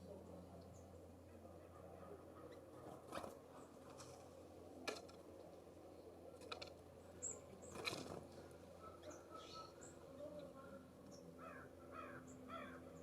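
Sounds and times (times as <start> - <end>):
birds pecking and hopping: 1.8 - 13.0
bird chirp: 8.8 - 10.0.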